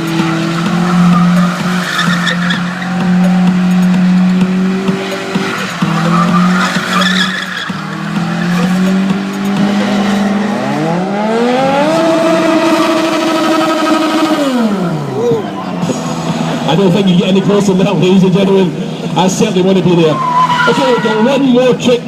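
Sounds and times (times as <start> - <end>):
tyre skidding: 0.0 - 10.6
motorcycle engine revving: 0.0 - 15.2.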